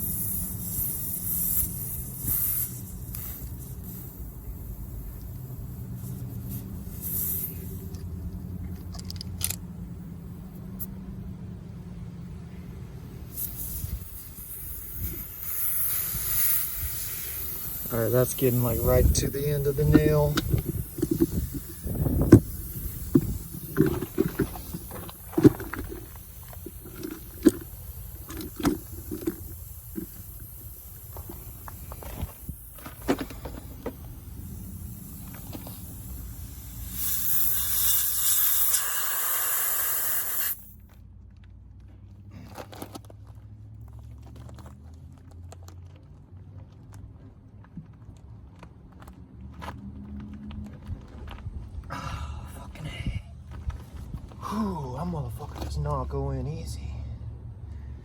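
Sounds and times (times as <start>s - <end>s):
faint hissing: 0.0s - 9.4s, 12.3s - 40.8s.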